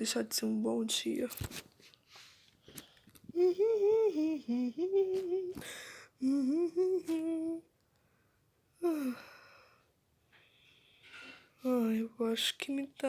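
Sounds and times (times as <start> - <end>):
cartoon voice humming: 3.4 - 5.6, 6.2 - 7.6.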